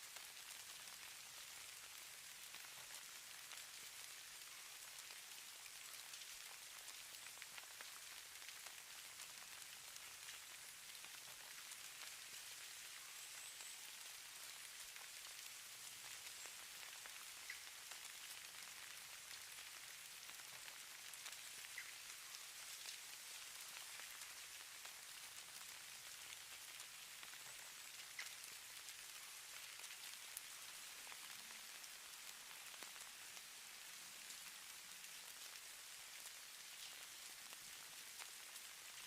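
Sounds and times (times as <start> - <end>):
snow pattering hiss: 0.0 - 39.0.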